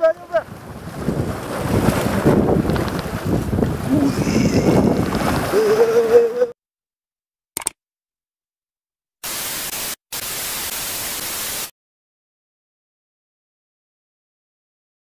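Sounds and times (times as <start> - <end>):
white-noise static hiss: 9.2 - 11.7.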